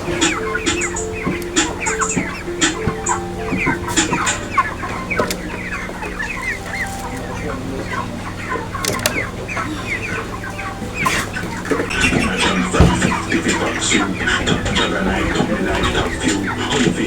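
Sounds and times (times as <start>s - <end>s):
chickens clucking and peeping: 0.0s - 17.0s
steady low hum: 0.0s - 17.0s.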